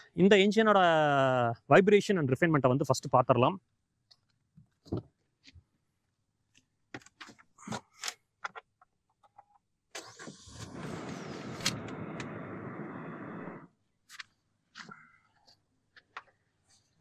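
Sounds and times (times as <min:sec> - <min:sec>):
car engine starting and running: 0:10.0 - 0:13.7.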